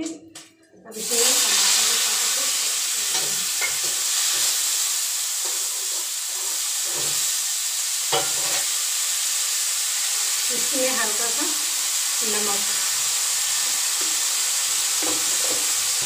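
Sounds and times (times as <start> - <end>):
tomatoes sizzling in hot oil: 0.9 - 16.0.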